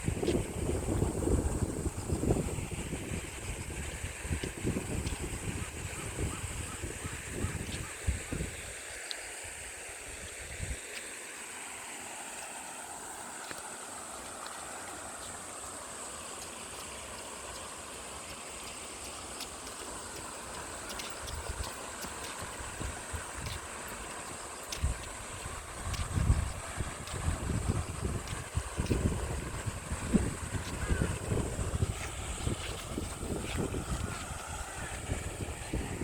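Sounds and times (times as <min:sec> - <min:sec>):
wind thumps on microphone: 0:00.0 - 0:08.5, 0:24.8 - 0:36.0
stream water flowing: 0:00.0 - 0:36.0.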